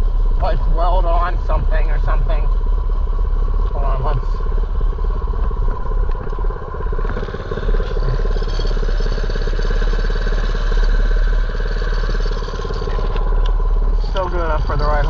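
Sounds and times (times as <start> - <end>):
small engine running: 3.2 - 15.0.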